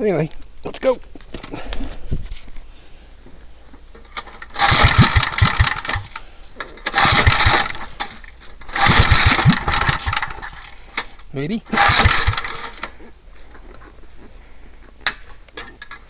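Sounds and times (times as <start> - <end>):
small engine pull-start sputtering: 4.0 - 13.0.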